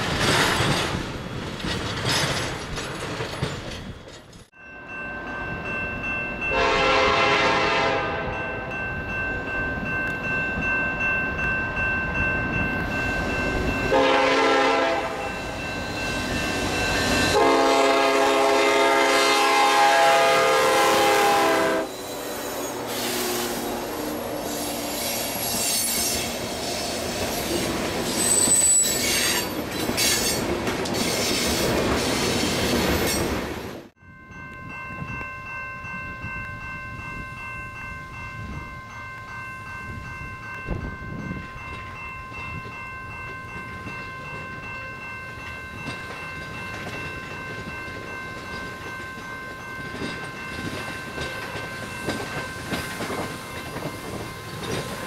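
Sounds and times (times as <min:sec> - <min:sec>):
high wheel squeal: 0:21.9 - 0:30.4.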